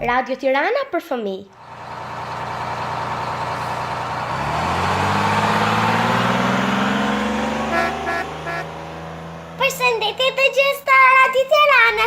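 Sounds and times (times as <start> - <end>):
car engine accelerating: 1.5 - 10.9
road noise: 1.5 - 12.0.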